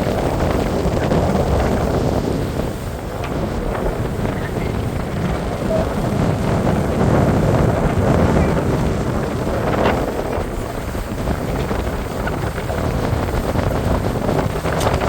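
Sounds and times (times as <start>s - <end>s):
boat rushing through water: 0.0s - 15.0s
wind buffeting microphone: 0.0s - 15.0s.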